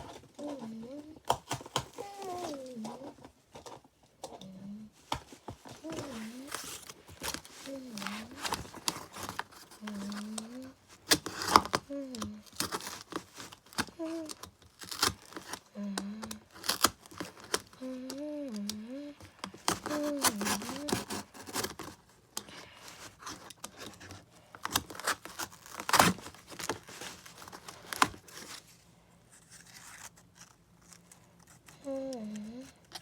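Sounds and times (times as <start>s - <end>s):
person humming: 0.4s - 1.2s, 1.9s - 3.2s, 4.3s - 4.9s, 5.8s - 6.6s, 7.6s - 8.6s, 9.8s - 10.8s, 11.8s - 12.5s, 14.0s - 14.4s, 15.7s - 16.5s, 17.7s - 21.3s, 31.8s - 32.9s
cardboard being cut: 24.6s - 28.6s.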